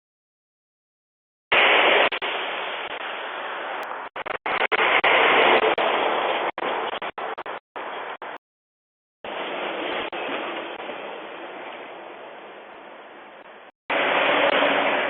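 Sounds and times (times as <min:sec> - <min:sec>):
truck passing: 0:13.9 - 0:15.0.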